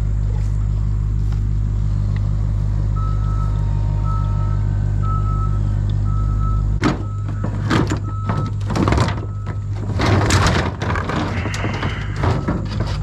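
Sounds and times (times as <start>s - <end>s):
heavy machinery engine running: 0.0s - 13.0s
reversing alarm beeping: 2.9s - 9.8s, 11.3s - 12.8s
wood cracking and crunching: 6.8s - 13.0s.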